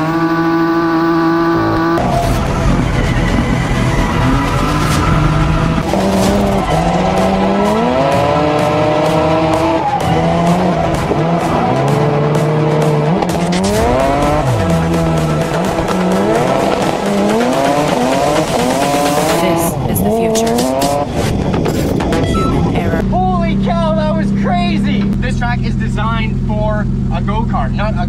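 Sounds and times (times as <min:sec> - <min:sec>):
car engine revving hard: 0:00.0 - 0:22.0
tires squealing: 0:00.0 - 0:26.2
electronic music with steady beat: 0:01.3 - 0:23.0.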